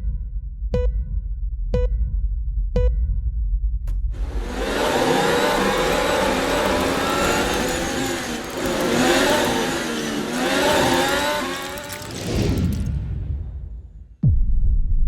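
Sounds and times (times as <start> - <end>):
racing car engines passing: 4.2 - 12.9.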